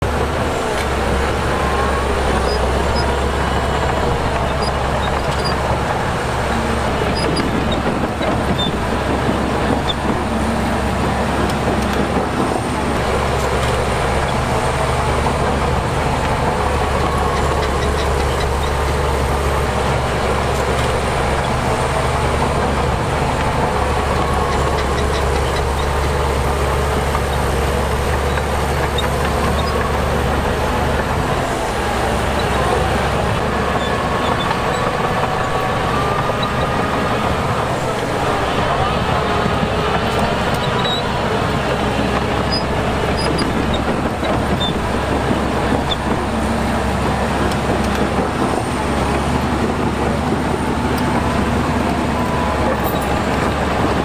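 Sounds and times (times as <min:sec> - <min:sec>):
heavy diesel machinery rumbling: 0:00.0 - 0:54.0.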